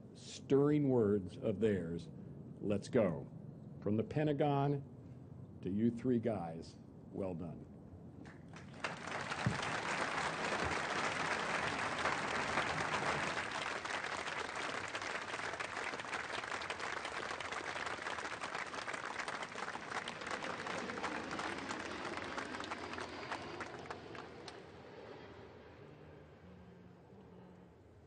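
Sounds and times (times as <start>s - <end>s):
audience applauding: 8.5s - 24.6s.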